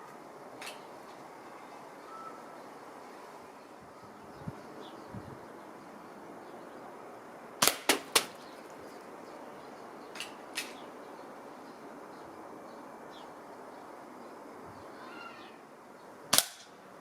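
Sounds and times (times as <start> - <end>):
air rifle sharp cracks: 7.6 - 8.5, 10.2 - 10.8, 16.3 - 16.8.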